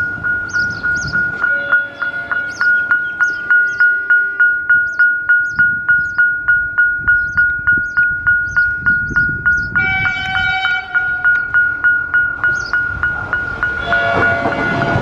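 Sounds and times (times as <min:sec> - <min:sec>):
level crossing bell ringing: 0:00.0 - 0:15.0
train horn: 0:09.8 - 0:11.5, 0:13.8 - 0:15.0.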